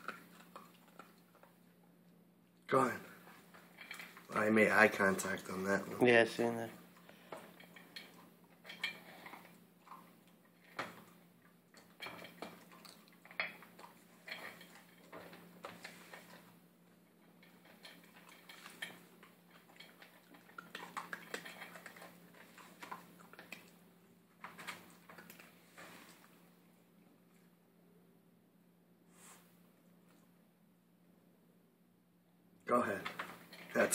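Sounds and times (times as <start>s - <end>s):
puppy crunching food: 0.0s - 6.0s, 6.7s - 26.4s.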